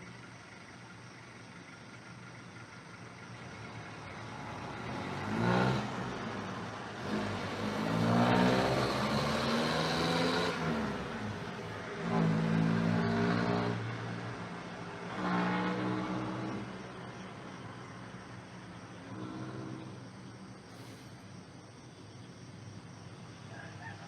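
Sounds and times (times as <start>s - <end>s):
motor engines passing by: 3.1s - 21.2s.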